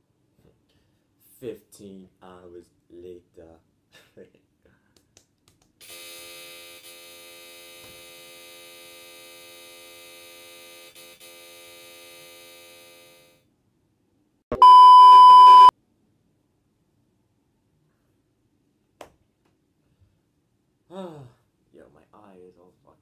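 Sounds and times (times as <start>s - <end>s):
censor bleep: 14.5s - 15.7s.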